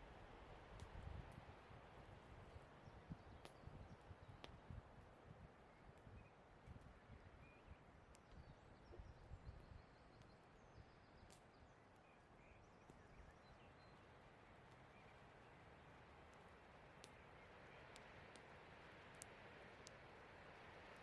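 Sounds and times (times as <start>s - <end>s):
faint forest background: 0.0s - 21.0s
campfire wood popping: 16.3s - 20.3s.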